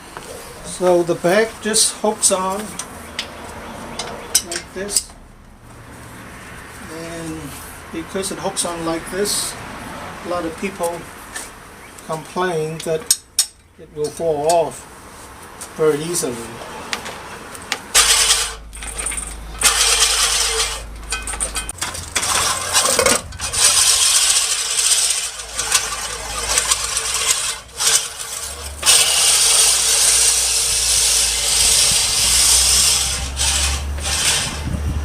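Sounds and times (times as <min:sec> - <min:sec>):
metal clattering and rattling: 0:17.0 - 0:34.7.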